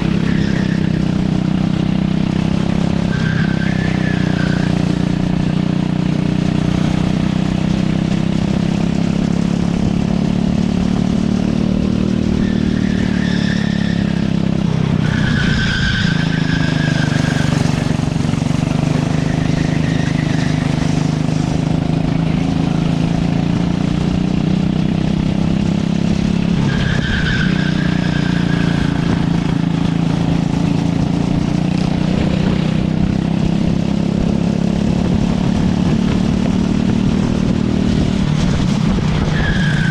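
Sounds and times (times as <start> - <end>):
racing kart engine: 0.0 - 39.9
tyres squealing: 12.4 - 21.1.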